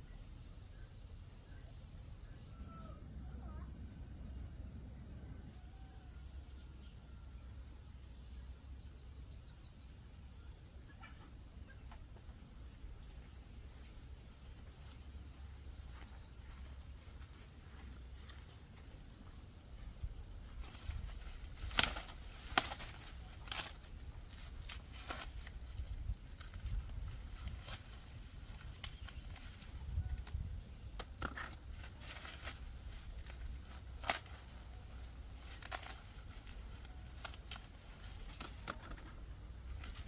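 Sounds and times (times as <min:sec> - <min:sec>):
insects buzzing: 0:00.0 - 0:40.0.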